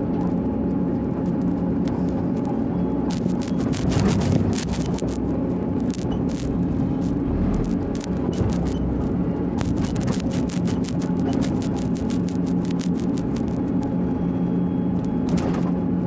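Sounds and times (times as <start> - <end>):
heavy machine engine running: 0.0 - 16.0
sharp clicks and clanks: 1.4 - 13.8.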